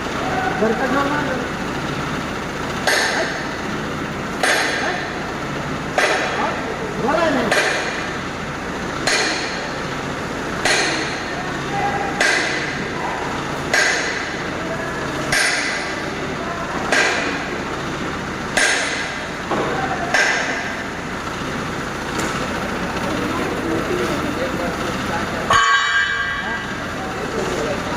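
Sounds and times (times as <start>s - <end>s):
background machinery noise: 0.0s - 27.9s
hammer striking steel: 2.8s - 3.5s, 4.4s - 5.2s, 6.0s - 6.4s, 7.5s - 8.2s, 9.0s - 9.7s, 10.6s - 11.3s, 12.2s - 12.9s, 13.7s - 14.4s, 15.3s - 16.0s, 16.9s - 17.5s, 18.5s - 19.3s, 20.1s - 20.9s, 25.5s - 26.8s.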